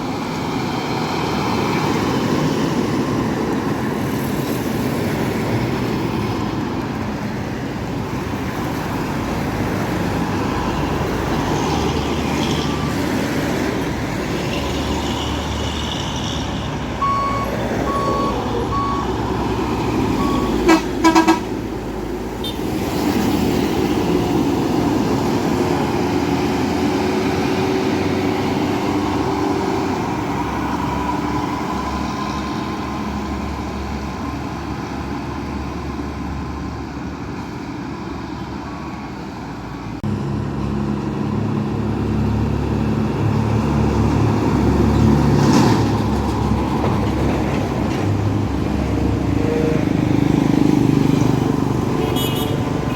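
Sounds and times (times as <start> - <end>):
heavy road traffic: 0.0 - 52.9
short high beeps: 17.0 - 19.1, 20.2 - 20.6
vehicle horn blasts: 20.2 - 21.5, 52.0 - 52.9.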